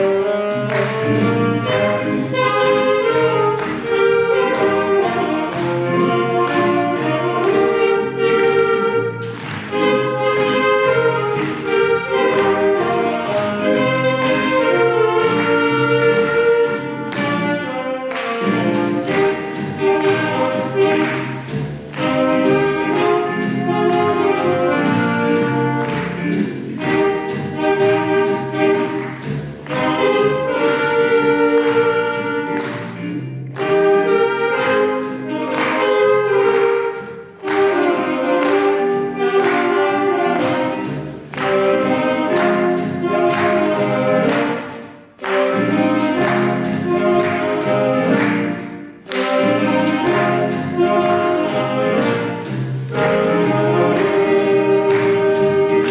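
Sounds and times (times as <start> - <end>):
saxophone ensemble playing: 0.0 - 55.9
steady beat: 0.0 - 55.9.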